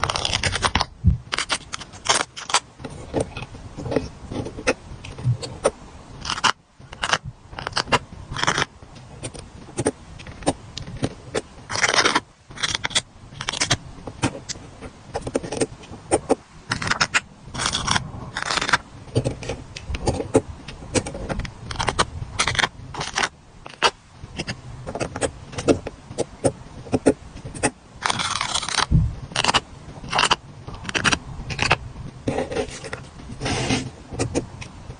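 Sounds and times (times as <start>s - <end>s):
stickers peeling: 0.0s - 2.6s, 27.0s - 31.8s
paper scraping: 0.0s - 5.5s, 15.2s - 20.4s, 27.0s - 34.4s.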